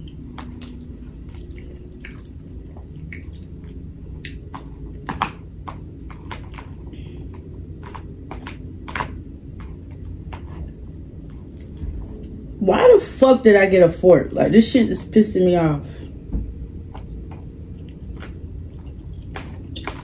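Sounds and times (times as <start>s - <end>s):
person chewing: 0.0s - 7.0s, 11.2s - 12.4s, 16.8s - 20.0s.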